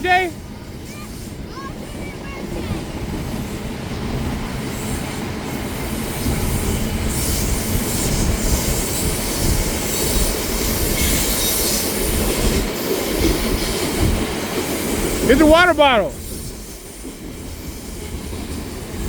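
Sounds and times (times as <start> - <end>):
freight train wheels rumbling on rails: 0.0 - 19.0
high hiss of wheel on rail: 0.6 - 2.2, 4.5 - 15.3, 16.1 - 19.0.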